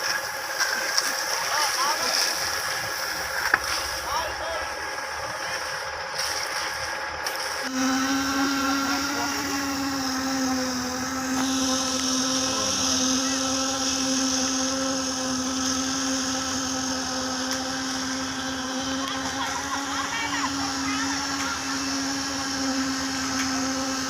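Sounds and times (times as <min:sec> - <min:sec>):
work site sounds: 0:00.0 - 0:24.0
machine motor humming: 0:00.3 - 0:24.0.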